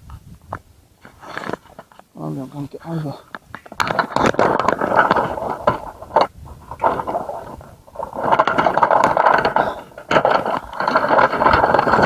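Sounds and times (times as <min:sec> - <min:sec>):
rustling through dense undergrowth: 0:00.0 - 0:12.0.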